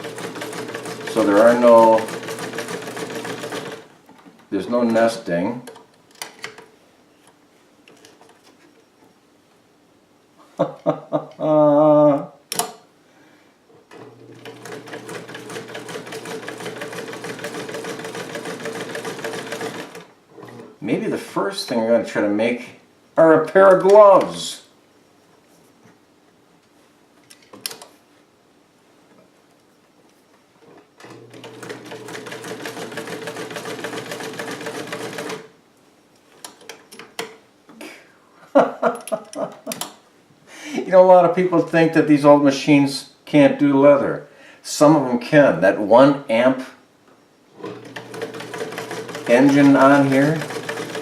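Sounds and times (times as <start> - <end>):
sewing machine motor hum: 0.0 - 3.9, 13.9 - 20.7, 31.0 - 35.5, 47.6 - 51.0.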